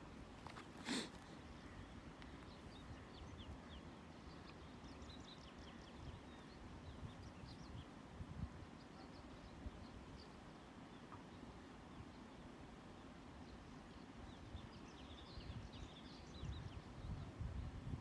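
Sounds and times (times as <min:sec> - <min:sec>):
faint small birds chirping: 0:00.0 - 0:18.0.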